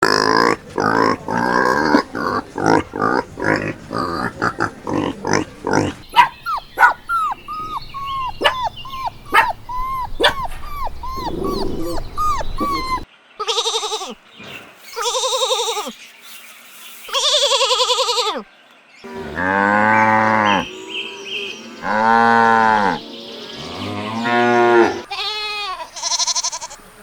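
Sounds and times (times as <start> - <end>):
farm animals calling: 0.0 - 16.0, 17.1 - 27.0
short chirping calls: 0.4 - 17.9.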